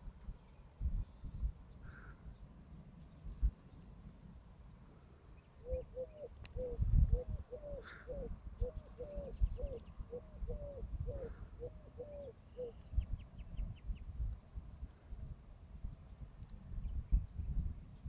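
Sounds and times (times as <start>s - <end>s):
bird hooting: 5.6s - 12.8s.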